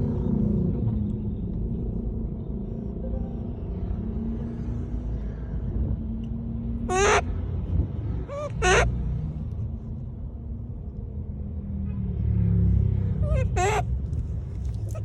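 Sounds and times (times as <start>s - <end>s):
monkey high-pitched calls: 6.9s - 7.3s, 8.2s - 8.9s, 13.2s - 13.9s.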